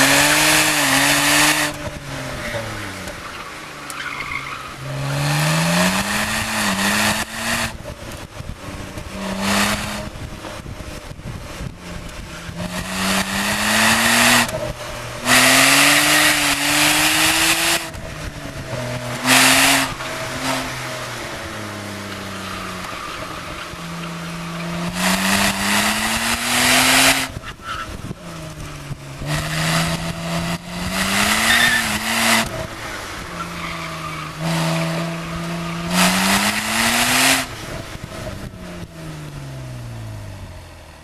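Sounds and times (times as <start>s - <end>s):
tyres screeching: 0.0s - 7.0s, 18.8s - 28.0s, 29.2s - 37.4s
car engine revving hard: 0.0s - 41.0s.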